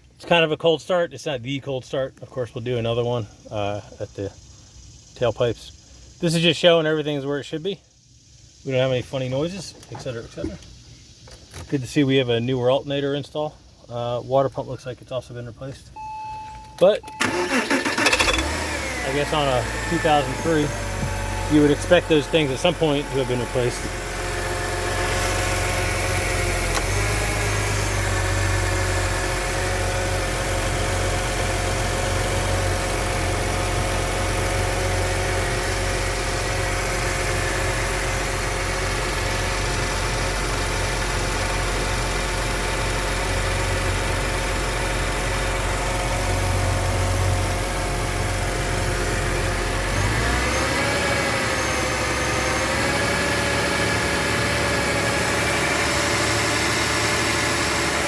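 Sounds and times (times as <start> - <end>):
car engine idling: 16.0 - 58.0.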